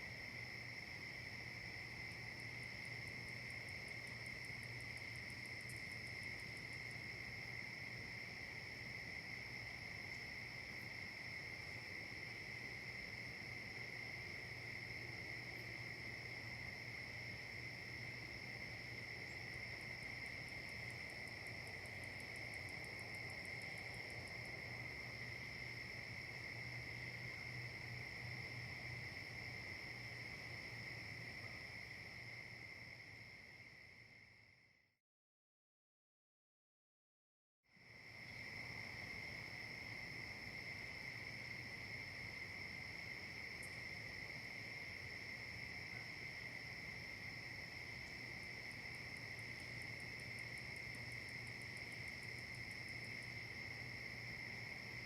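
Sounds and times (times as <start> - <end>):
crickets trilling: 0.0 - 34.6, 37.8 - 55.0
insect high ticks: 2.8 - 7.2, 42.1 - 44.3, 47.7 - 55.0.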